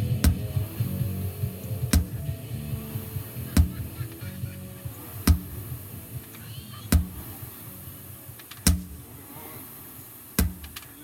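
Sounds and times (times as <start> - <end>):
sledgehammer strikes: 0.0 - 1.1, 1.7 - 2.4, 3.0 - 4.0, 4.9 - 5.8, 6.9 - 7.6, 8.4 - 9.2, 10.4 - 11.0.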